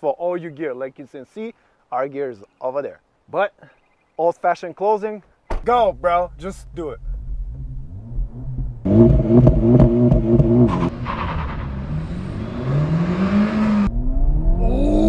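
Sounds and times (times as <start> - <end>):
car engine accelerating hard: 7.1 - 15.0.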